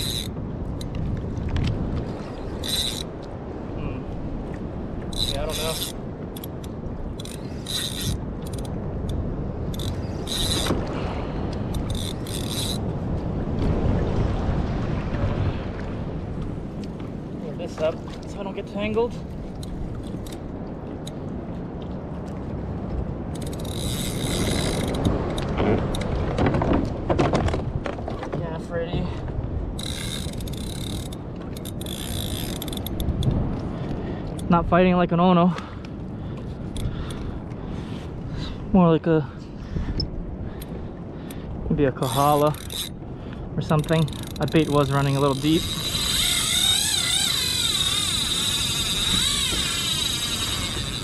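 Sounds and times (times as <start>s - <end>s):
fishing reel drag buzzing: 0.0s - 0.4s, 2.1s - 3.1s, 5.1s - 8.8s, 9.6s - 10.8s, 11.6s - 12.9s, 23.4s - 25.1s, 29.8s - 33.1s, 42.0s - 43.0s, 43.8s - 51.0s
water noise: 0.0s - 51.0s
wind: 0.0s - 51.0s.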